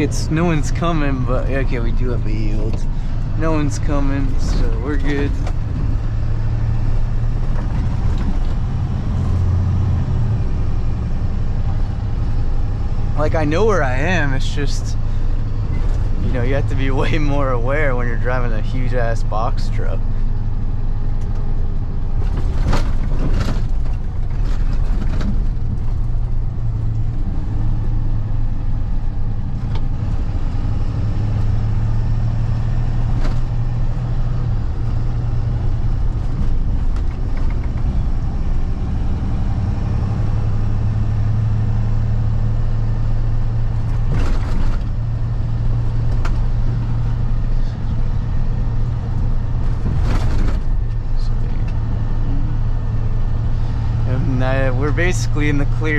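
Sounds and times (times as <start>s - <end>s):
road noise: 0.0s - 55.9s
truck engine drone: 0.0s - 55.9s
knocks and rattles: 22.2s - 26.4s.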